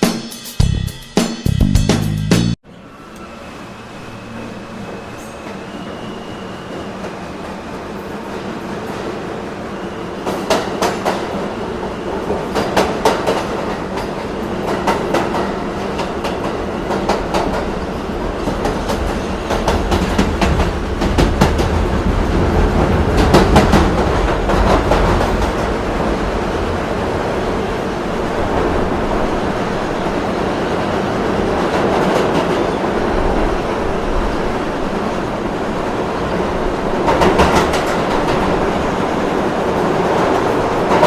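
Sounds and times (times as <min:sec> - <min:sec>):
train rumbling: 0:01.6 - 0:41.0
train wheels clicking on rail joints: 0:10.2 - 0:11.4, 0:12.2 - 0:25.8, 0:36.9 - 0:39.0.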